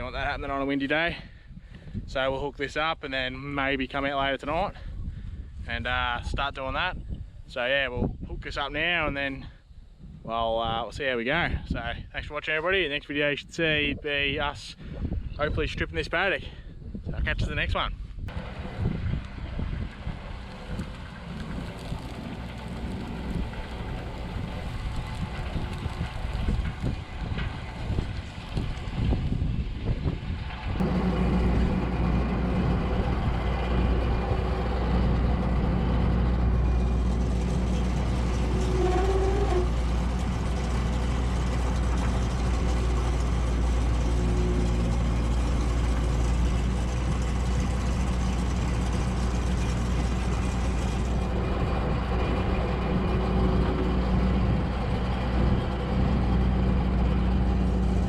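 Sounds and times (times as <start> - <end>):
wind buffeting microphone: 0.0 - 2.4, 4.5 - 12.2, 13.2 - 58.0
combine harvester diesel engine: 18.3 - 58.0.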